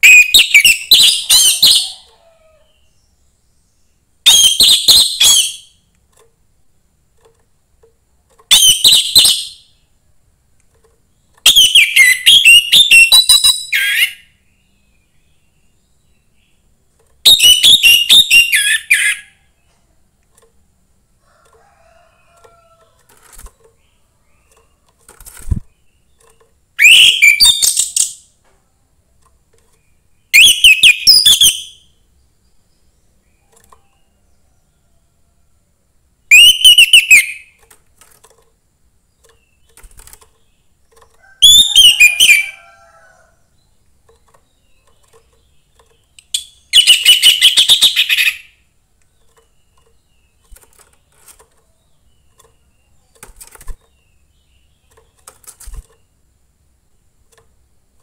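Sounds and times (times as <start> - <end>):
thrush singing whistled notes: 17.3 - 19.3, 26.8 - 28.0, 30.3 - 31.9, 36.3 - 37.5, 41.4 - 42.6, 46.3 - 48.5.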